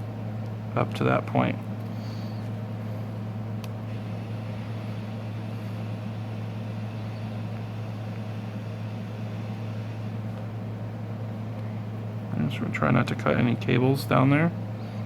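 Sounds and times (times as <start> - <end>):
motor or fan humming: 0.0 - 15.0.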